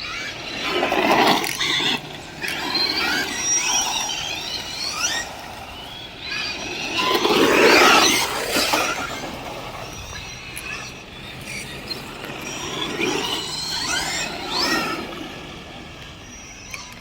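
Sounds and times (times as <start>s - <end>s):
rc car motors whining: 0.0s - 17.0s.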